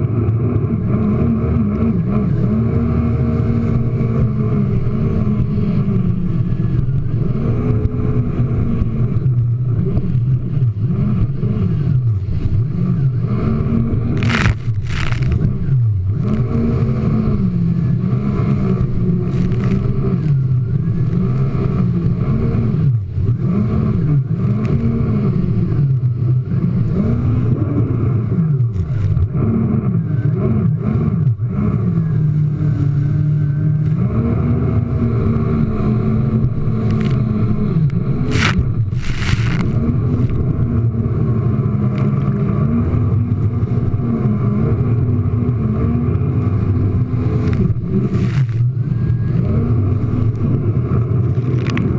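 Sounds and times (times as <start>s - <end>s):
jet ski engine revving: 0.0s - 51.9s
rushing noise bursts: 13.4s - 15.7s, 38.1s - 40.5s.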